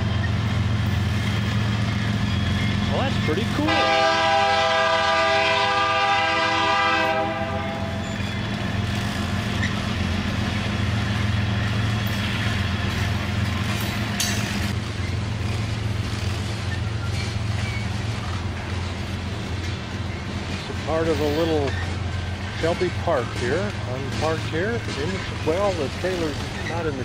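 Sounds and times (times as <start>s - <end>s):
freight cars rumbling and clattering: 0.0s - 27.0s
locomotive air horn chord: 3.6s - 8.0s.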